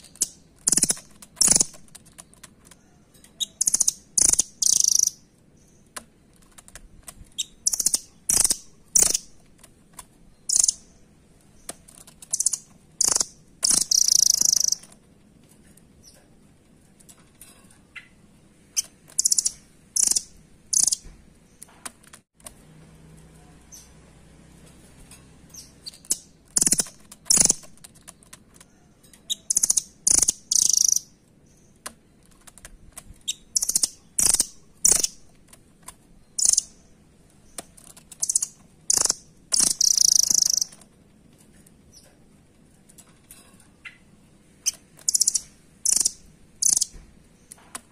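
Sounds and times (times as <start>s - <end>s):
bird high-pitched chirps: 0.0s - 1.8s, 2.7s - 5.9s, 7.3s - 9.4s, 10.3s - 15.0s, 17.9s - 21.6s, 25.5s - 27.7s, 28.7s - 31.8s, 33.2s - 35.2s, 36.2s - 37.6s, 38.2s - 40.8s, 43.8s - 47.6s.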